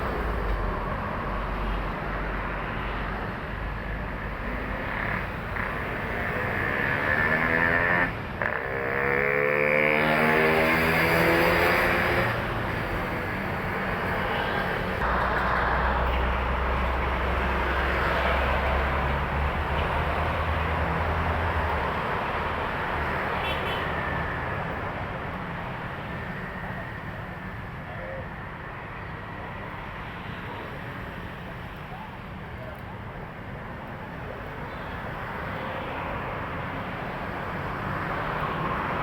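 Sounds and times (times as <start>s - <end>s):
heavy trucks passing: 0.0s - 26.8s.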